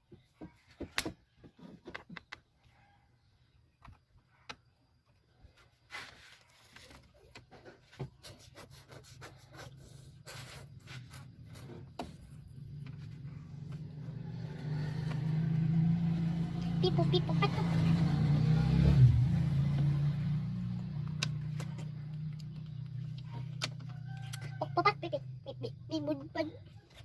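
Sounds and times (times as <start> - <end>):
car engine humming: 11.1 - 24.1.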